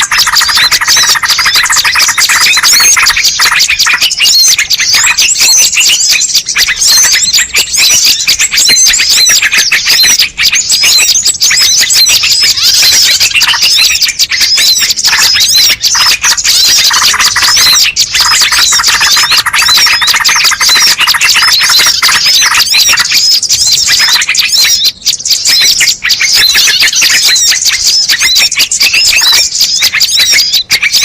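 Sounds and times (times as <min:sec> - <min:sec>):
chorus of small birds chirping: 0:00.0 - 0:31.0.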